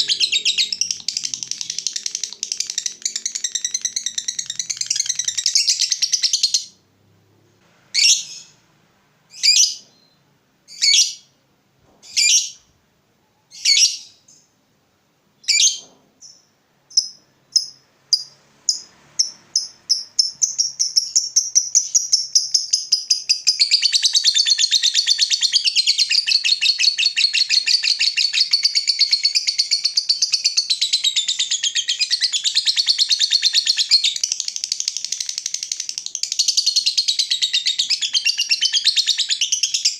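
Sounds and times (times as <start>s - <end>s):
lovebird calling: 0.0s - 6.7s
lovebird chattering trill: 0.0s - 6.7s.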